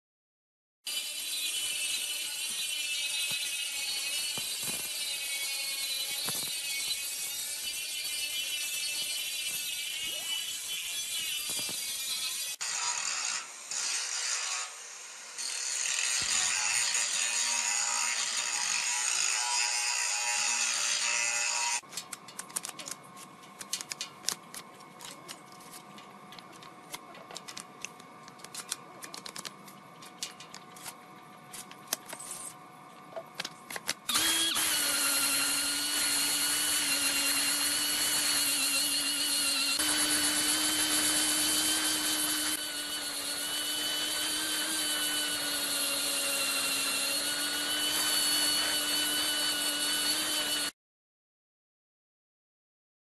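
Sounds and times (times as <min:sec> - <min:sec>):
loud tool noise: 0:00.9 - 0:21.9, 0:33.9 - 0:50.8
power tool motor whining: 0:34.1 - 0:50.7.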